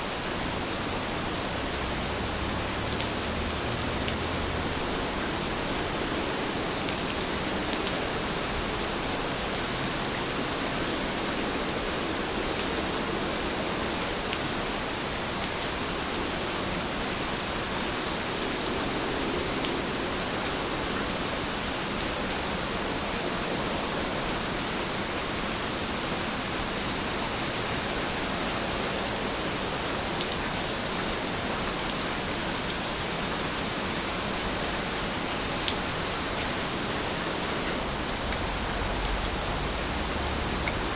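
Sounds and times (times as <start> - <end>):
steady rainfall: 0.0 - 40.9
rain drop ticks: 1.7 - 4.6, 38.1 - 40.9.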